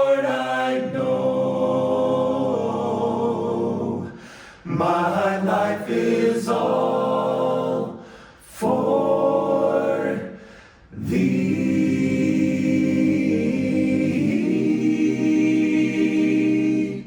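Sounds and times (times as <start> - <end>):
singer breathing: 4.1 - 4.7, 8.0 - 8.5, 10.3 - 11.0.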